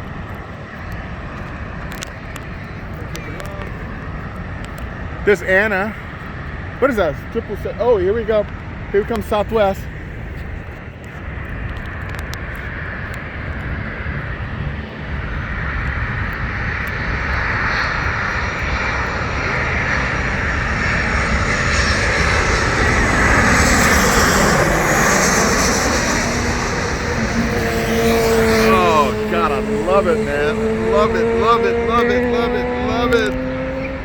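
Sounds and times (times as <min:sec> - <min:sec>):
jet engines of airliner: 0:00.0 - 0:34.0
high-pitched engine whine: 0:09.0 - 0:34.0.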